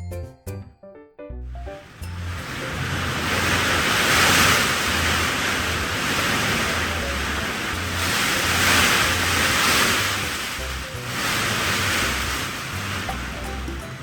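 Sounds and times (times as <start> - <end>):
background music bass notes: 0.0 - 14.0
loud rushing noise: 1.8 - 14.0.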